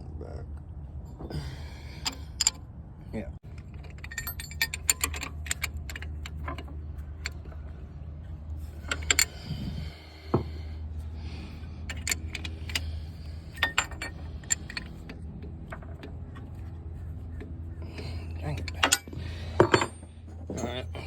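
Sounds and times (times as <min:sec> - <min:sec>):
steady low hum: 0:00.0 - 0:21.0
wrenches clinking against metal: 0:01.9 - 0:02.7, 0:03.4 - 0:07.8, 0:08.6 - 0:10.0, 0:11.8 - 0:21.0.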